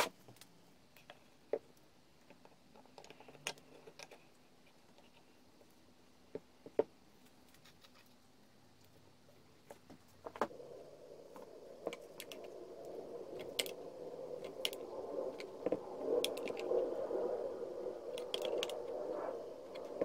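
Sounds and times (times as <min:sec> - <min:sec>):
faint steady hum: 0:00.0 - 0:20.0
light clicks of small objects: 0:18.0 - 0:20.0.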